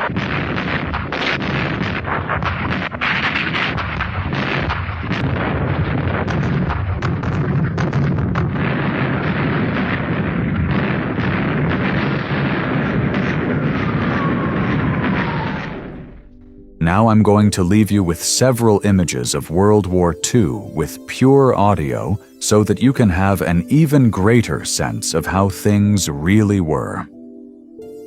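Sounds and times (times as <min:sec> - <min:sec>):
gunfire and blasts: 0:00.0 - 0:16.5
low rumble: 0:13.0 - 0:17.5
falling whistle: 0:14.0 - 0:16.1.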